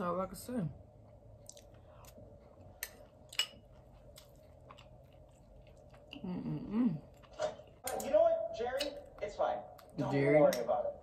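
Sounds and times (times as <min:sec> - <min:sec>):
person chewing and smacking food: 0:01.0 - 0:06.4.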